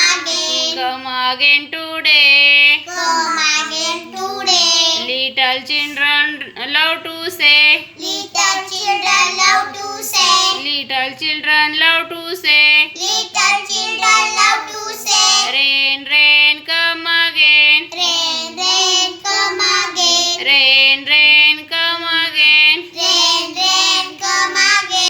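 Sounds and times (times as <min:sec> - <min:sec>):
child singing: 0:00.0 - 0:01.0, 0:02.9 - 0:05.1, 0:08.0 - 0:10.8, 0:12.9 - 0:15.8, 0:17.9 - 0:20.8, 0:22.8 - 0:25.0.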